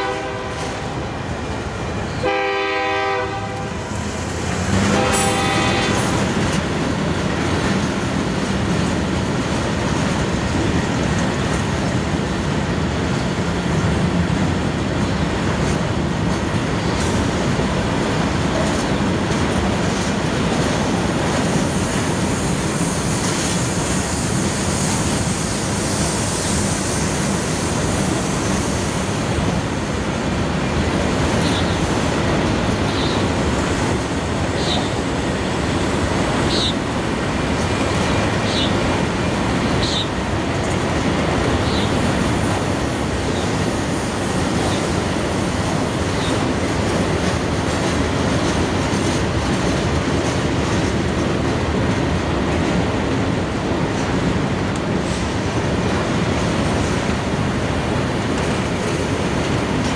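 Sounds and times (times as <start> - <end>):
train horn blasts: 0.0 - 0.8, 2.2 - 3.8, 4.7 - 6.2
freight cars rumbling and clattering: 3.8 - 59.9.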